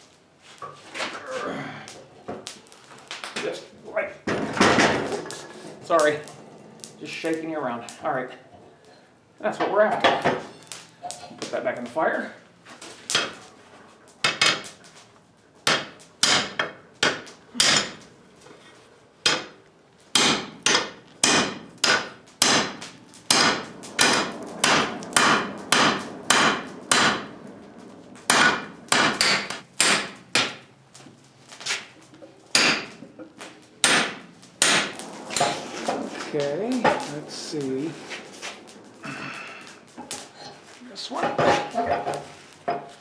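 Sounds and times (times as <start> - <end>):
hammer striking steel on anvil: 15.6 - 18.0, 20.2 - 27.3, 28.3 - 30.6, 32.5 - 33.0, 33.8 - 35.6.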